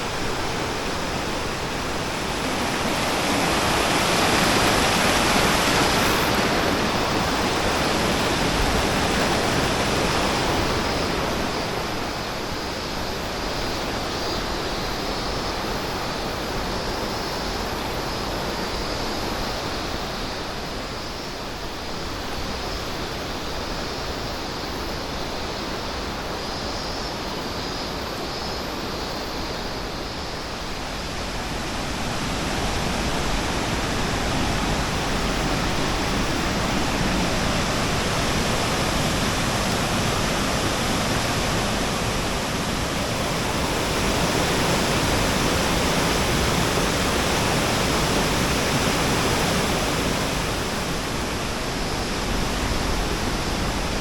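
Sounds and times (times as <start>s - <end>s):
waterfall roaring: 0.0s - 21.8s, 28.6s - 54.0s.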